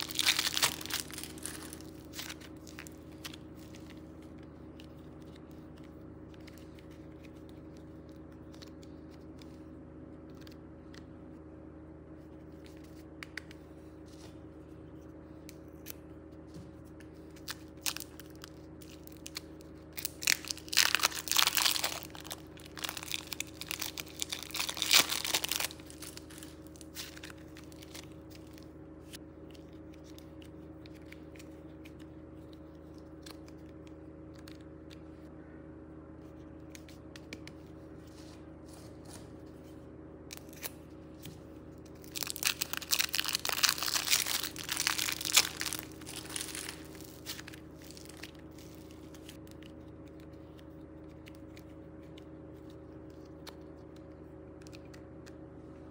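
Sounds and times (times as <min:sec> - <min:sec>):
plastic piping bag crinkling: 0:00.0 - 0:05.7, 0:17.3 - 0:28.7, 0:41.8 - 0:50.3
steady low hum: 0:00.0 - 0:55.9.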